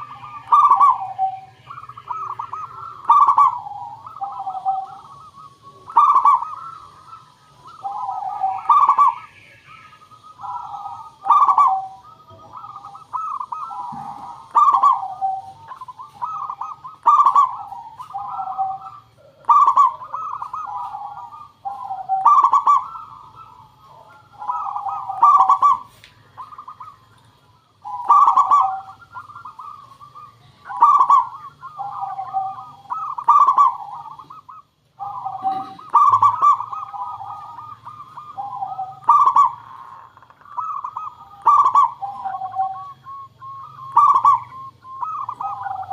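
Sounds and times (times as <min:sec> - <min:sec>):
doves cooing: 0:00.0 - 0:45.9
thin steady high tone: 0:00.0 - 0:45.9.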